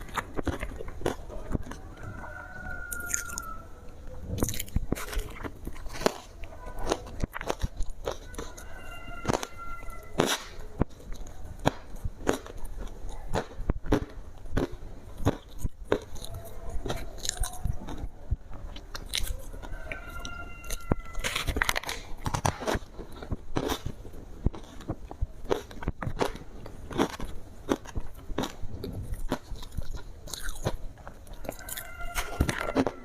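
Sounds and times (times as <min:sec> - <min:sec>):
ice being crunched by chewing: 0:00.0 - 0:03.6, 0:04.3 - 0:33.0.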